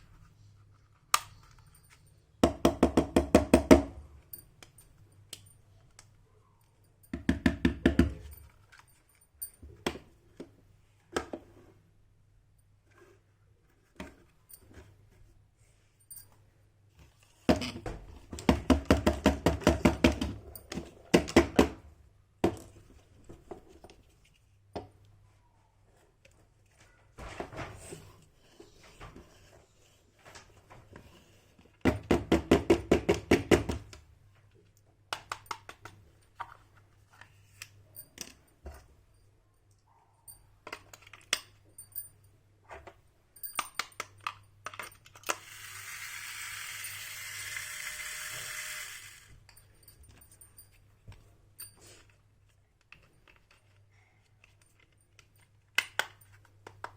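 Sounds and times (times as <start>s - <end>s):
rapid clicking of toy pieces: 45.1s - 49.3s.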